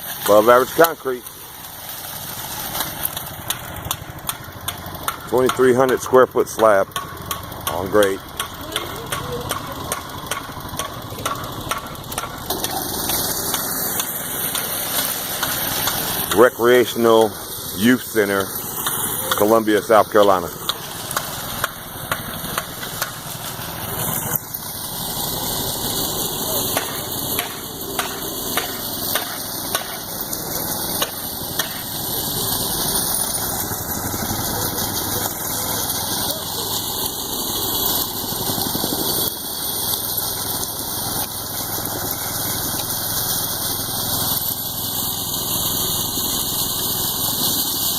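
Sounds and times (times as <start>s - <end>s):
construction machinery running: 0.0s - 47.9s
sharp knocks: 26.8s - 30.1s.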